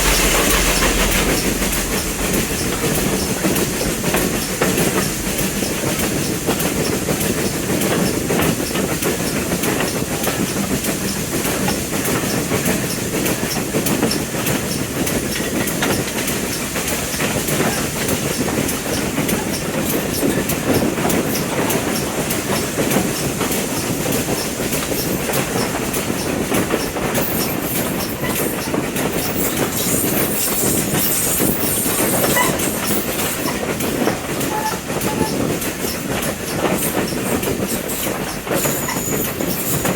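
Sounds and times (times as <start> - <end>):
high hiss: 0.0 - 6.9
train rumbling on rails: 0.0 - 39.9
wheel clatter over track: 0.0 - 39.9.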